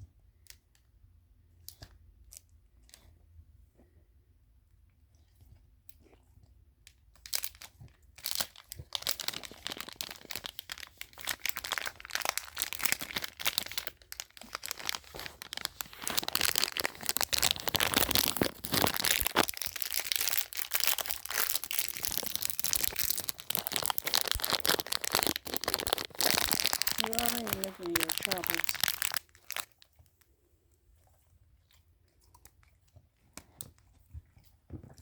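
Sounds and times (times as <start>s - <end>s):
plastic bag crinkling: 7.4s - 29.9s.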